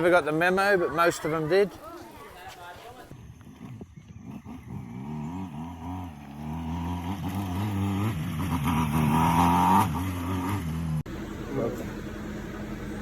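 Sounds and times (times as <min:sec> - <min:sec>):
motorbike engine running: 0:03.4 - 0:13.0.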